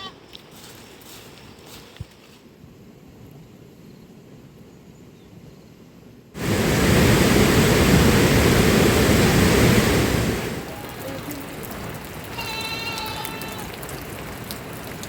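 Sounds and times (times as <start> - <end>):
rush of falling water: 6.4 - 15.0.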